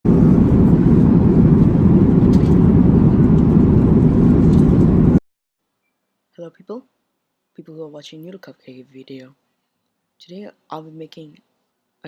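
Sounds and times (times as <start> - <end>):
low rumble of vehicle noise: 0.1 - 5.2.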